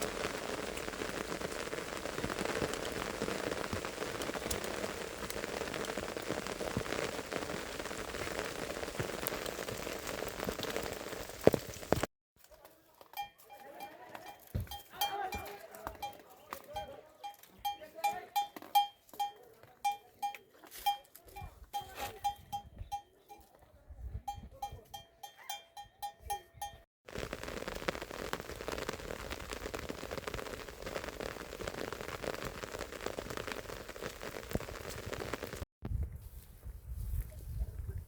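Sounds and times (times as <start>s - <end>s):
animal bell clanking: 13.2s - 16.2s, 16.8s - 23.5s, 24.3s - 26.8s.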